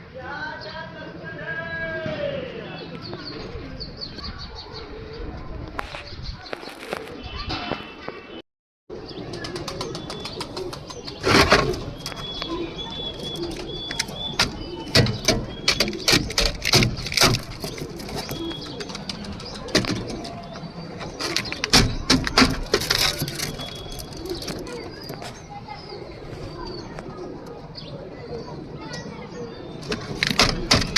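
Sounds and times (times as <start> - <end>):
pigeons cooing: 8.9 - 30.9
sharp clicks and knocks: 13.2 - 25.4, 29.8 - 30.9.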